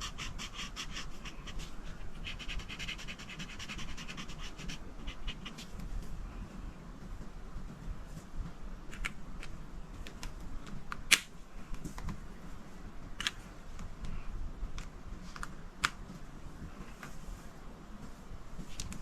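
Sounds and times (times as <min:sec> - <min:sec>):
colouring strokes on paper: 0:00.0 - 0:05.8.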